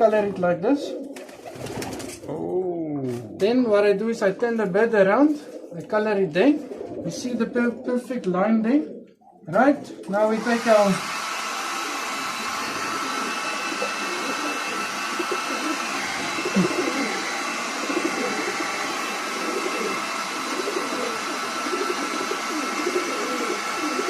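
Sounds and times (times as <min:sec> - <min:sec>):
pigeons cooing: 0:00.8 - 0:03.4, 0:05.3 - 0:10.2, 0:11.8 - 0:24.0
fan whirring hiss: 0:09.6 - 0:24.0.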